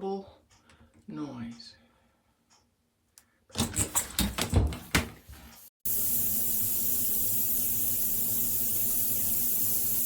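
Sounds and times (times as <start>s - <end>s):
water spraying from shower head: 5.9s - 10.0s.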